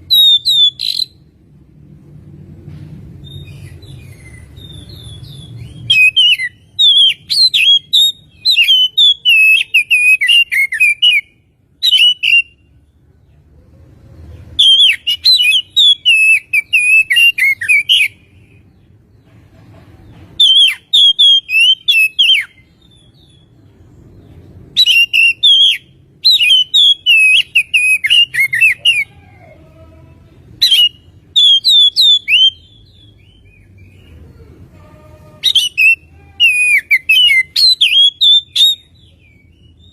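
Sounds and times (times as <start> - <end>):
bird singing whistles and trills: 0.0 - 1.2, 3.2 - 12.6, 14.6 - 18.2, 20.4 - 23.6, 24.7 - 29.1, 30.6 - 34.1, 35.4 - 39.9.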